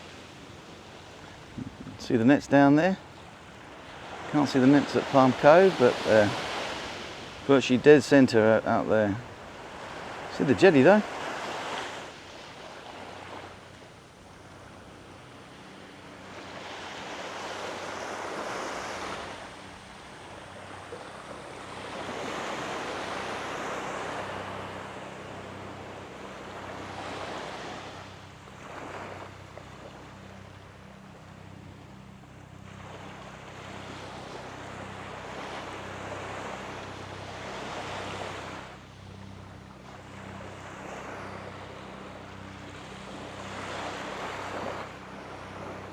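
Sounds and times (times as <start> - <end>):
faint low pulsing hum: 0.0 - 10.8
small waves washing onto beach: 0.0 - 45.9.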